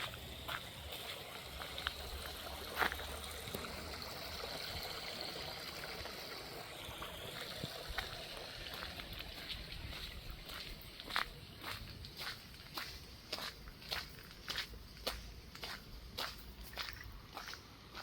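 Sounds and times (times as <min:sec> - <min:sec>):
water running: 0:00.0 - 0:11.1.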